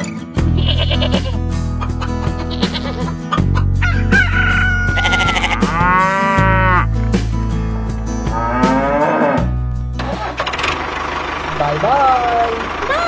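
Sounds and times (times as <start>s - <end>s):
chicken high call: 3.8s - 6.5s
cow mooing: 4.9s - 6.9s, 8.3s - 9.6s.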